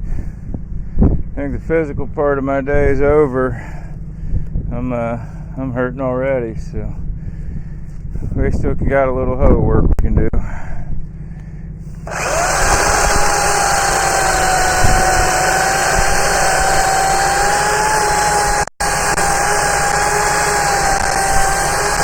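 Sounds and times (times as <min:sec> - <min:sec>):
steady whine: 0:00.0 - 0:22.0
tractor diesel engine running: 0:11.0 - 0:22.0.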